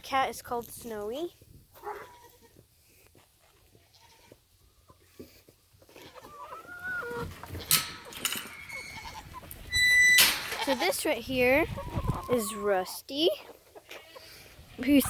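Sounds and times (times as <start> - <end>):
goat bleating: 1.8 - 2.6, 3.9 - 4.4.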